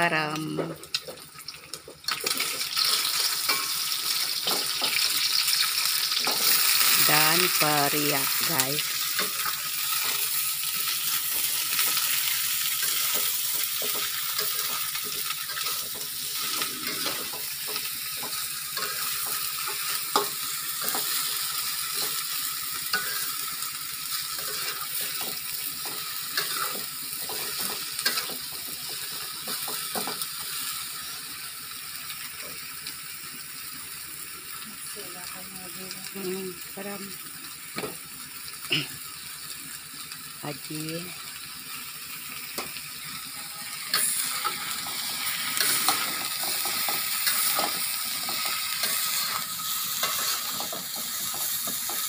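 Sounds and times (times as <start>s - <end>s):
vegetables sizzling in oil: 0.0s - 52.0s
spatula clinking and scraping wok: 2.1s - 31.1s, 42.2s - 52.0s.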